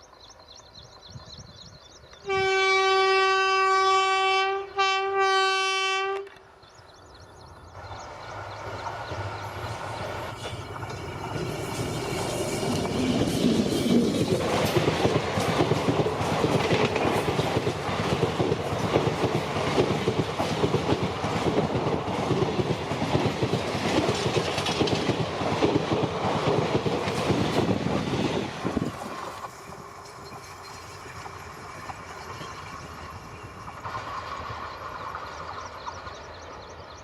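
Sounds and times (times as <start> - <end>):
train wheels clattering over rail joints: 8.5 - 36.3.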